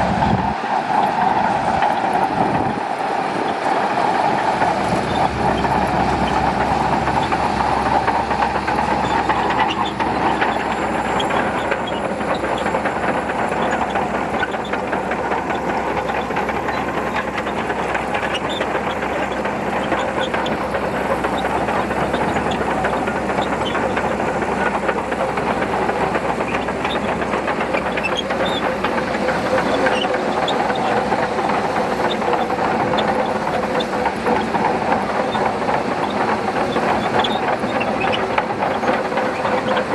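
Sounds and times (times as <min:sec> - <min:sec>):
bulldozer diesel engine: 0:00.0 - 0:39.9
steel tracks clanking: 0:00.0 - 0:39.9.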